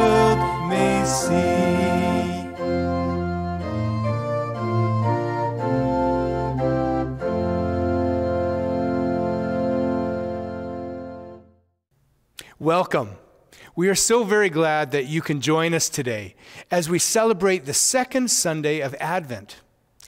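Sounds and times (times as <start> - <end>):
organ chords: 0.0 - 11.8.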